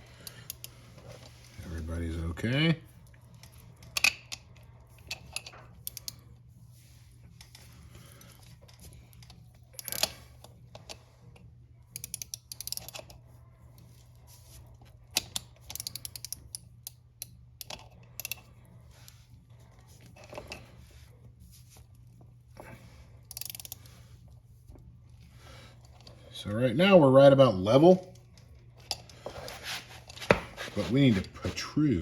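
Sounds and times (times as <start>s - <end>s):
steady low hum: 0.0s - 32.0s
sharp metallic ratchet clicks: 12.0s - 13.0s, 15.7s - 16.6s, 23.3s - 23.8s.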